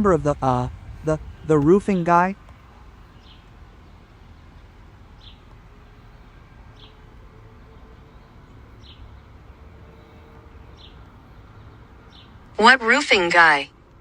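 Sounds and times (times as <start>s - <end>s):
faint low background noise: 12.5s - 14.0s.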